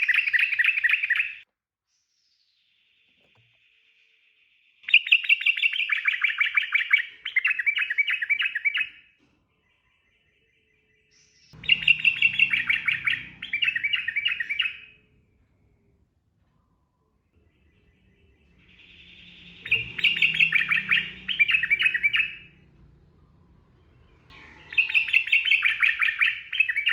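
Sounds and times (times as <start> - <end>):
bird chattering song: 0.0 - 1.4, 4.8 - 15.2, 16.9 - 26.9
faint low rumble: 11.6 - 25.8.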